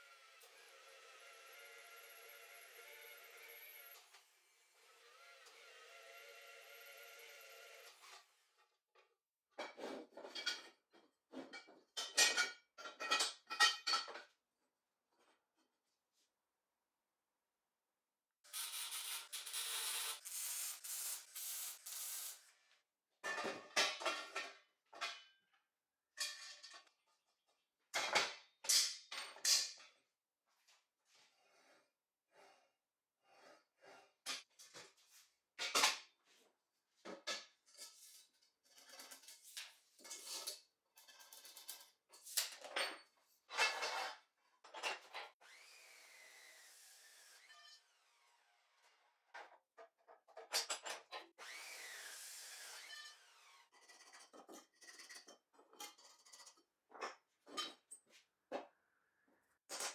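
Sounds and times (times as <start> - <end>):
tools scraping and knocking: 9.6 - 14.3, 49.3 - 51.3, 53.7 - 58.7, 59.7 - 59.9.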